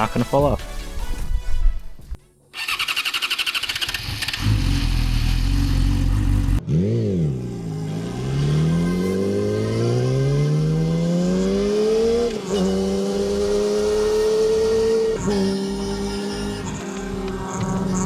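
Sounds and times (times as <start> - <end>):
starter motor cranking: 2.6 - 5.4
engine accelerating: 2.6 - 18.0
engine revving: 2.6 - 18.0.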